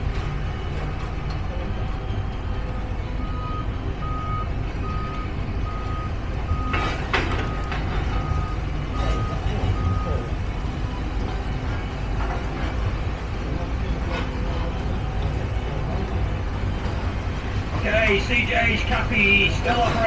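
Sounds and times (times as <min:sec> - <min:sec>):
low engine rumble: 0:00.0 - 0:20.0
reversing alarm beeps: 0:02.1 - 0:11.8.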